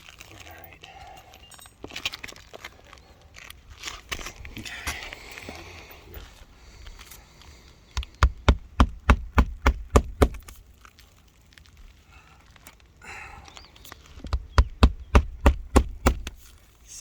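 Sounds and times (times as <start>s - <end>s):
hammer striking a shingle roof: 8.0s - 10.6s, 14.2s - 16.4s.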